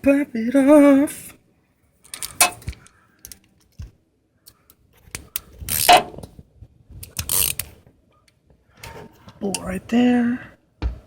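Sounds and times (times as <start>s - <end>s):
metallic rattling: 2.1s - 2.9s.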